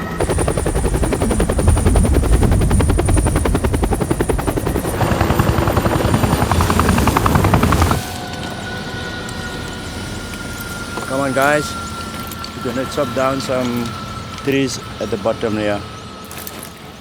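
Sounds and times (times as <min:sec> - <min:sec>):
helicopter rotor blades chopping: 0:00.0 - 0:08.5
helicopter engine rumble: 0:00.0 - 0:17.0.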